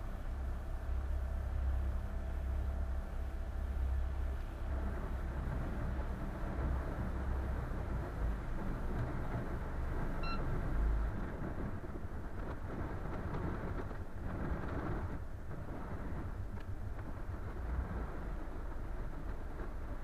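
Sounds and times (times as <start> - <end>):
boat engine rumble: 0.0 - 20.0
short beep: 10.2 - 10.4.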